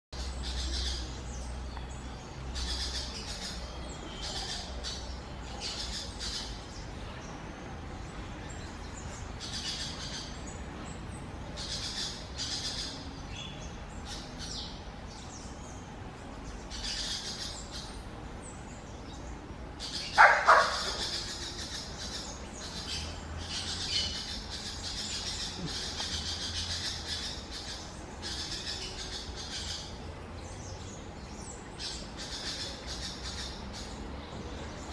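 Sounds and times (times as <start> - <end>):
birds chirping: 0.2 - 34.9.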